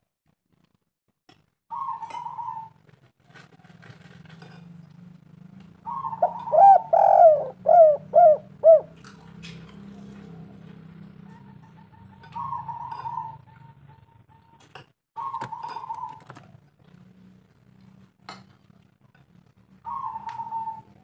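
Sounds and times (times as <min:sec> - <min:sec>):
dove cooing: 0:01.7 - 0:02.8, 0:05.8 - 0:09.1, 0:09.8 - 0:14.6, 0:15.2 - 0:16.7, 0:19.8 - 0:21.0.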